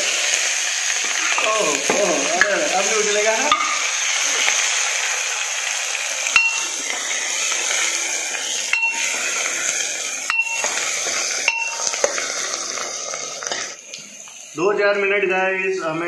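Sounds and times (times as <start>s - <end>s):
onions sizzling in oil: 0.0s - 15.1s
metal spoon knocking on pot: 3.5s - 3.8s, 6.4s - 6.7s, 8.8s - 9.1s, 10.3s - 10.8s, 11.5s - 12.0s.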